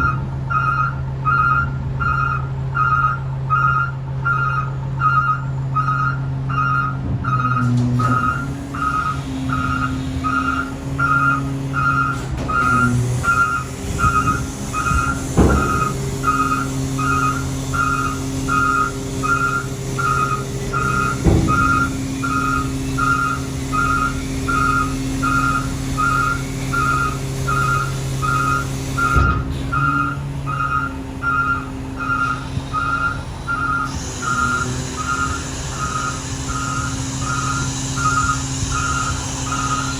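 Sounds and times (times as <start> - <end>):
backup alarm beeping: 0.0 - 39.9
diesel truck engine running: 0.0 - 39.9
sharp knocks: 8.0 - 25.6.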